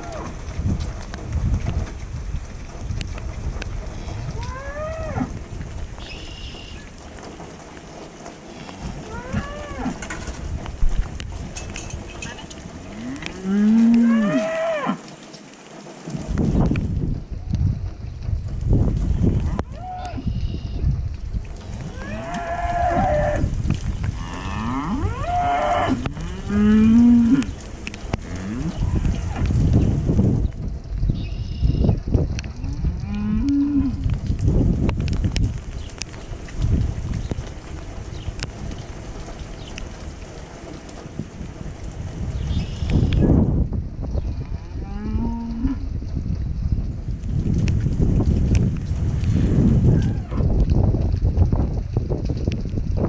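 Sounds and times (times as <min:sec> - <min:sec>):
rain: 0:00.0 - 0:53.0
cattle mooing: 0:04.4 - 0:05.3, 0:08.5 - 0:10.1, 0:12.8 - 0:15.0, 0:21.8 - 0:23.5, 0:24.2 - 0:27.5, 0:44.6 - 0:45.8.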